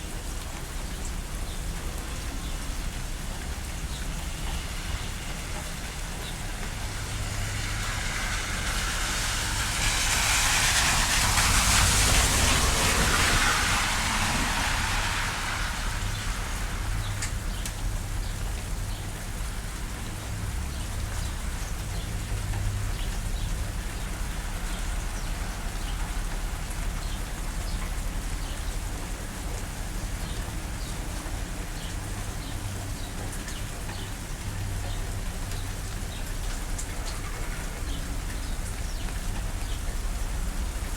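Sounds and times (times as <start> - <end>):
steady rain hiss: 0.0 - 40.9
raindrop ticks: 0.1 - 13.9, 15.4 - 40.9
rushing swell: 4.9 - 17.6.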